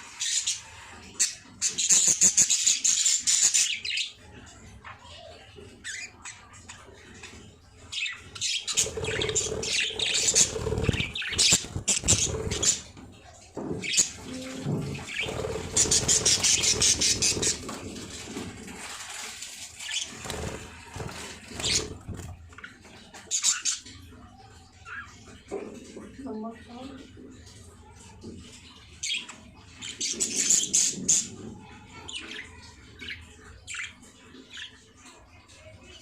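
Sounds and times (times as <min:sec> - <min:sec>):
baby birds squawking: 0:08.0 - 0:13.1, 0:13.8 - 0:19.0, 0:19.8 - 0:22.4.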